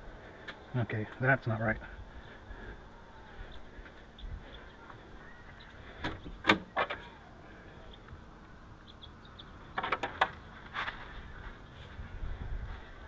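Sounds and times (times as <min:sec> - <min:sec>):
sharp clicks and knocks: 0:09.7 - 0:10.4.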